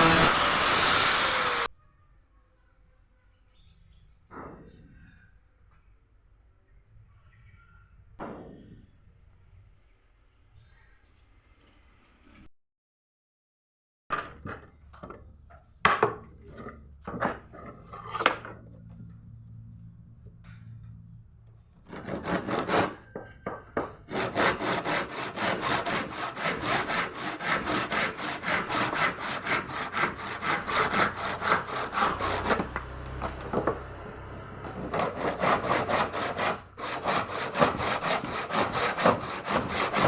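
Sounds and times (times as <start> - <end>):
hand saw cutting wood: 0.0 - 1.7, 21.8 - 23.2, 24.1 - 33.8, 34.6 - 40.0
wood and saw knocks: 0.0 - 1.7, 21.8 - 34.0, 34.6 - 40.0.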